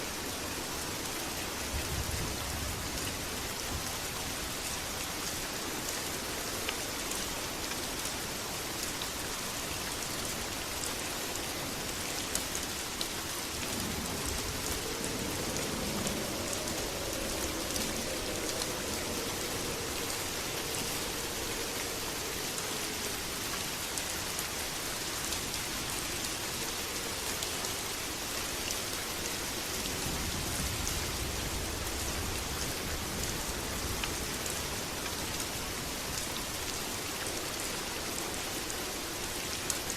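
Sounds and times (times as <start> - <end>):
heavy rain: 0.0 - 39.9
low rumble: 13.5 - 23.4.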